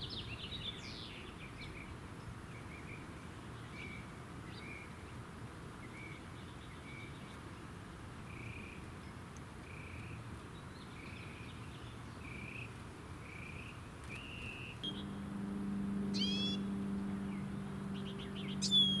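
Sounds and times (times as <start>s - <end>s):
steady low hum: 13.2s - 19.0s
bird whistled note: 14.8s - 15.3s, 16.0s - 19.0s
bird meow-like call: 16.1s - 16.7s.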